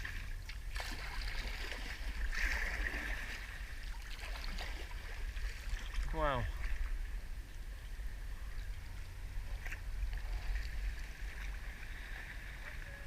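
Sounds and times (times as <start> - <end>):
steady low rumble: 0.0 - 13.0
water splashing around a kayak: 0.0 - 13.0.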